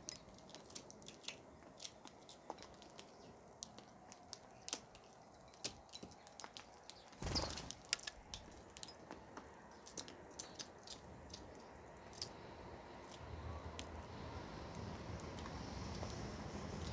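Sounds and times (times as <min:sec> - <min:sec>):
rustling burst: 0:07.2 - 0:08.0.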